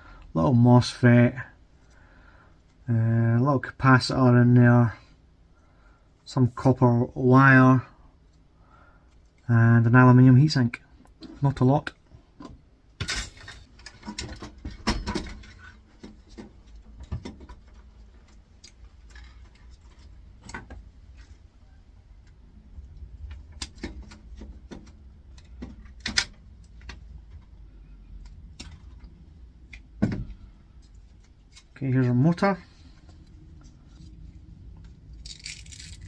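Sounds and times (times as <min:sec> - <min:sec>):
metal and plastic parts rattling: 0:13.0 - 0:21.4, 0:35.2 - 0:36.0.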